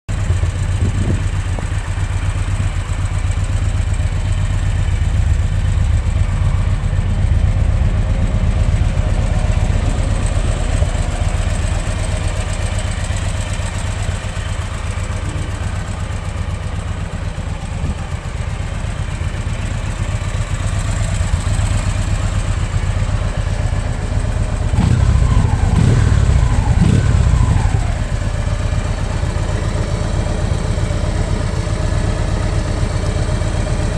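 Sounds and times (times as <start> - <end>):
motorcycle engine idling: 0.1 - 33.9
engine revving: 24.6 - 28.4.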